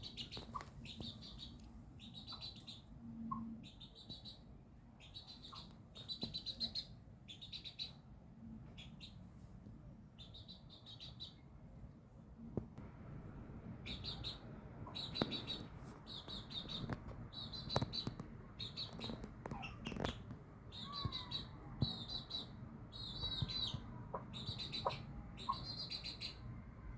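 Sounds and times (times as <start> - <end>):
chick chirping trills: 0.0 - 4.4, 5.0 - 8.0, 13.8 - 26.5.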